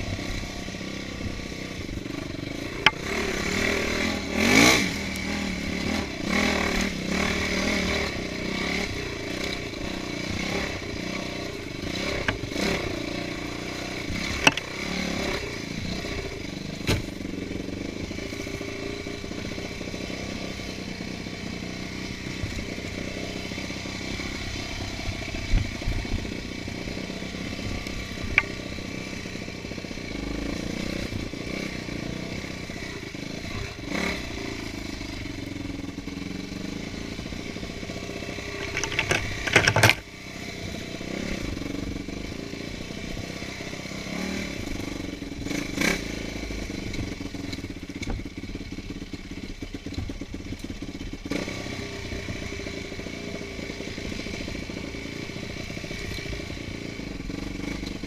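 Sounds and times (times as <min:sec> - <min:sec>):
motorcycle engine revving: 0:00.0 - 0:58.0
sharp knocks and clatter: 0:14.2 - 0:14.7, 0:38.5 - 0:40.0.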